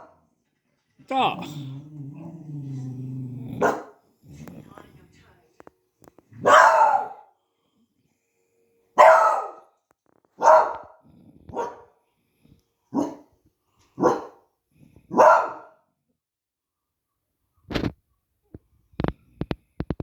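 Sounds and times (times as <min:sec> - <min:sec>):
dog barking: 0:03.5 - 0:04.0, 0:06.4 - 0:07.3, 0:09.0 - 0:09.8, 0:10.4 - 0:12.0, 0:12.9 - 0:13.4, 0:14.0 - 0:14.5, 0:15.1 - 0:15.8.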